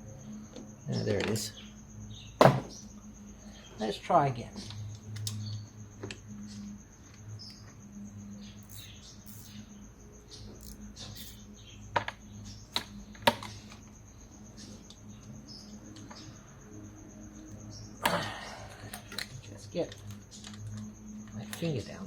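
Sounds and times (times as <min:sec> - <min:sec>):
spanner clicking on bolt: 0:08.6 - 0:09.6, 0:10.6 - 0:11.4.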